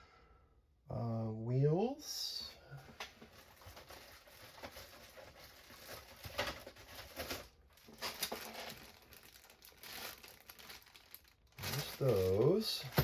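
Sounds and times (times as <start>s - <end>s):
kit parts rustling and tapping: 2.9s - 8.9s, 12.2s - 13.0s.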